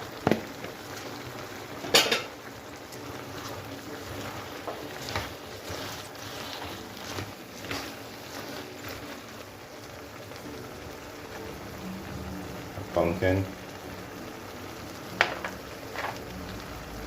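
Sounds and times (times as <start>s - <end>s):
light knocks on pot: 15.2s - 15.5s.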